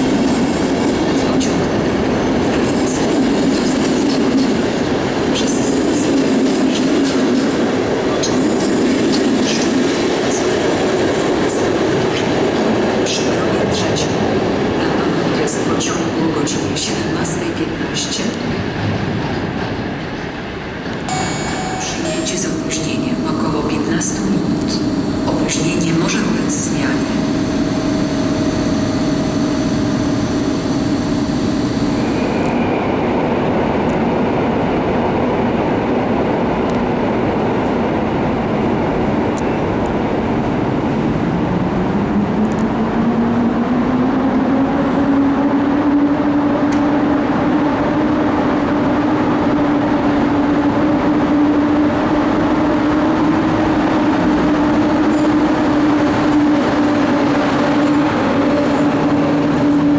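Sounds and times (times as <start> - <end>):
electric train humming: 0.0 - 59.9.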